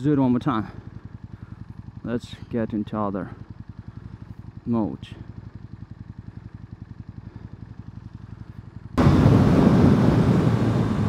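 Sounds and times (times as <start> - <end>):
motorcycle engine idling and revving: 0.0 - 11.0
rushing wind: 9.0 - 11.0.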